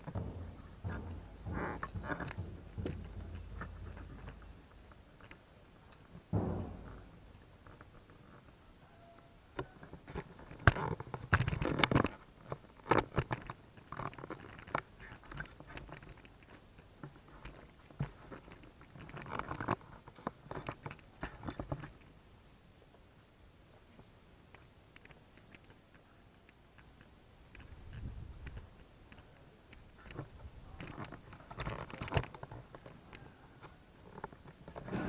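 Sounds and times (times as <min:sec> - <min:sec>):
scattered knocks clicks and thumps: 0:00.0 - 0:05.4, 0:06.0 - 0:08.5, 0:09.6 - 0:22.0, 0:30.0 - 0:33.0.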